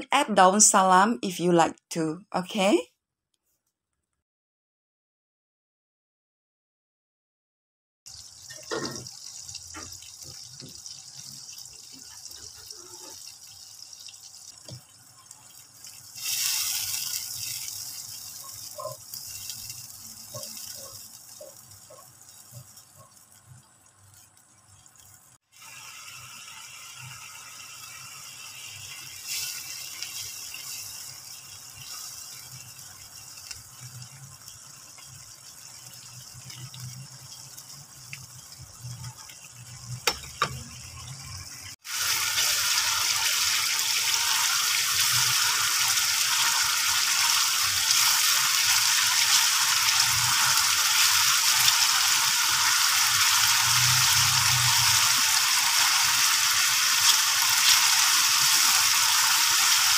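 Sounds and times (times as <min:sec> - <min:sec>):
paste sizzling in oil: 0:08.1 - 0:24.5, 0:25.4 - 0:40.5, 0:41.7 - 0:59.9
paste bubbling in a pan: 0:08.1 - 0:40.2, 0:41.7 - 0:59.9.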